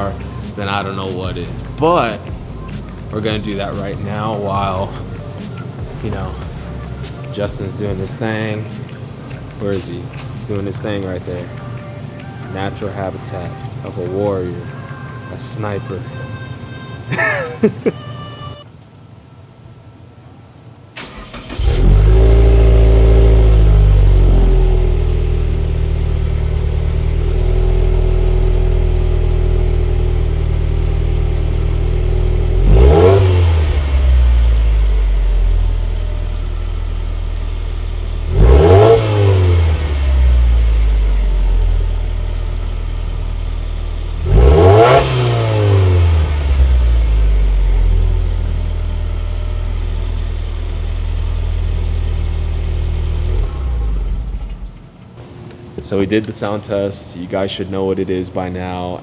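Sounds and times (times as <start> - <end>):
car engine revving: 0.0 - 13.8, 21.0 - 55.0
car engine idling: 0.0 - 16.7, 20.9 - 55.2.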